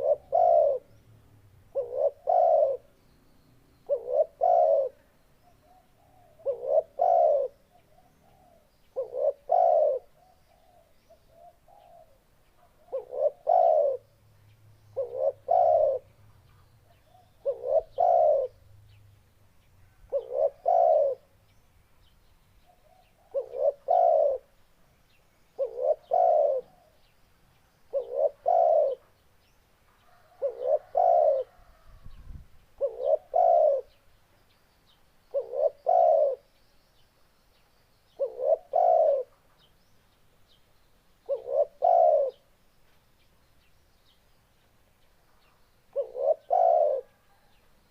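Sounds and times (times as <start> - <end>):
dove cooing: 0.0 - 1.0, 1.7 - 3.0, 3.8 - 14.1, 15.0 - 16.1, 16.9 - 18.6, 20.1 - 21.3, 22.7 - 24.6, 25.6 - 27.1, 27.9 - 29.1, 30.1 - 32.2, 32.8 - 34.0, 35.3 - 36.5, 38.1 - 39.4, 41.2 - 42.5, 45.9 - 47.6.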